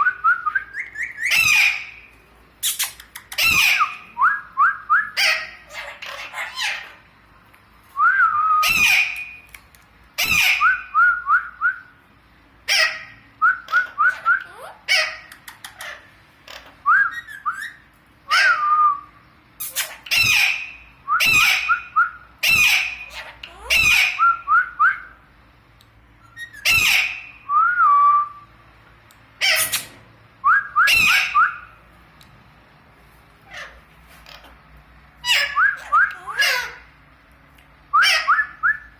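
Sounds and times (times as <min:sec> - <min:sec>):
parrot squawking: 0:00.7 - 0:04.1, 0:05.0 - 0:07.1, 0:08.6 - 0:09.5, 0:10.2 - 0:11.0, 0:12.6 - 0:18.7, 0:19.6 - 0:24.5, 0:26.2 - 0:27.5, 0:29.4 - 0:30.0, 0:30.8 - 0:31.8, 0:33.4 - 0:36.9, 0:37.9 - 0:38.6.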